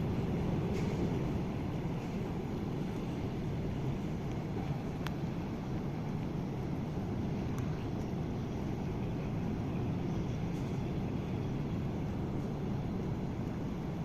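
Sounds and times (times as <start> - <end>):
ship engines low rumble: 0.0 - 14.0.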